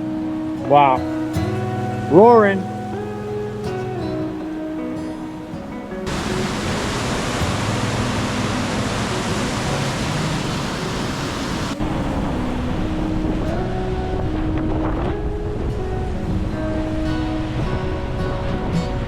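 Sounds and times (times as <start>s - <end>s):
soft background music: 0.0s - 19.0s
waterfall roaring: 0.0s - 19.0s.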